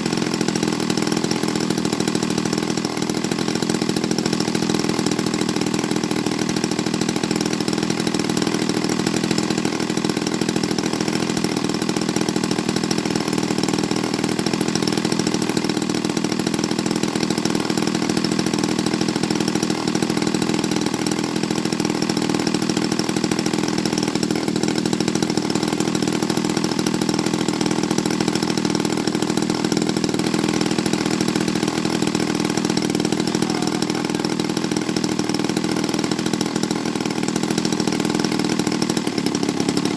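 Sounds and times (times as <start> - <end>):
model airplane engine running: 0.0 - 39.9.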